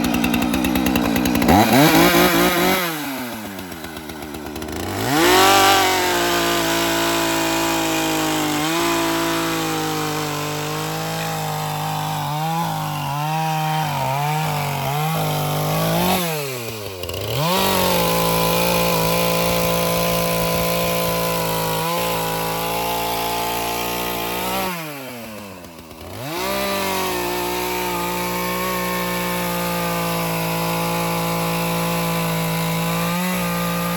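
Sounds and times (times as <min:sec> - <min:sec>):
chainsaw revving and cutting wood: 0:00.0 - 0:33.9.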